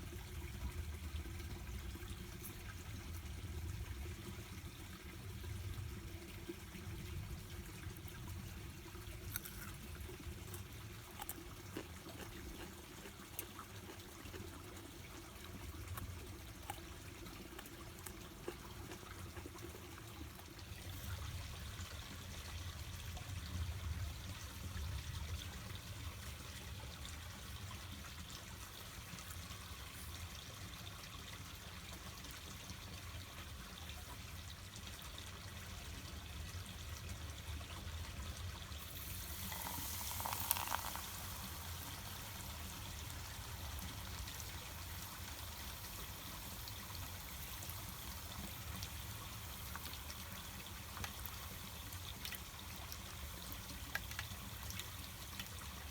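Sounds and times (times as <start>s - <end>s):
water trickling: 38.6s - 55.9s.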